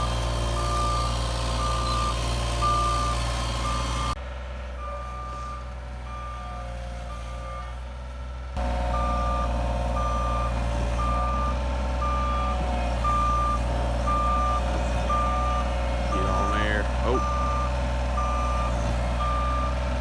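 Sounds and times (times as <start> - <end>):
truck reversing alarm beeping: 0.0 - 7.8, 8.6 - 20.0
truck engine running: 0.0 - 20.0.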